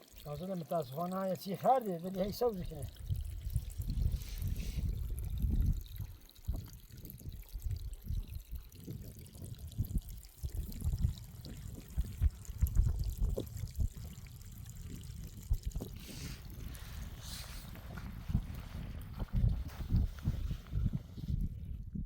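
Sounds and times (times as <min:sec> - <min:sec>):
water pouring and trickling: 0:00.0 - 0:22.0.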